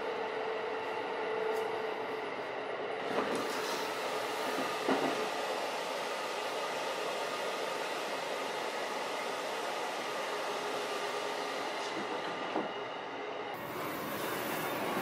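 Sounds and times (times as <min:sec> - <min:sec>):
train running rumble: 0:00.8 - 0:08.5.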